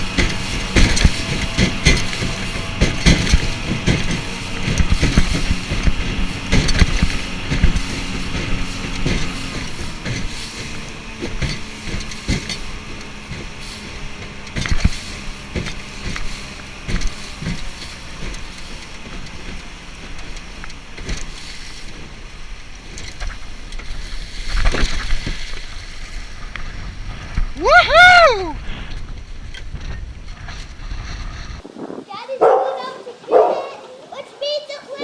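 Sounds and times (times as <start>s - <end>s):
knocks and bumps: 0.0s - 25.7s
faint engine hum: 0.0s - 35.0s
wind on microphone: 24.5s - 33.5s.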